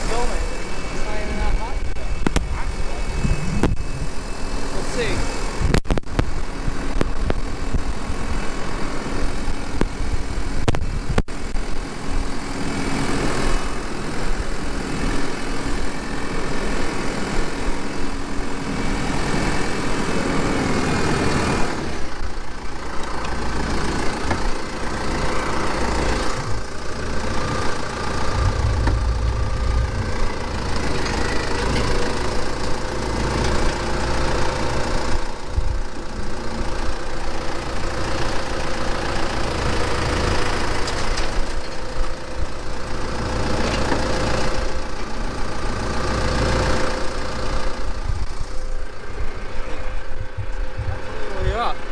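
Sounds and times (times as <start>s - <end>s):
engine running: 18.3s - 51.6s.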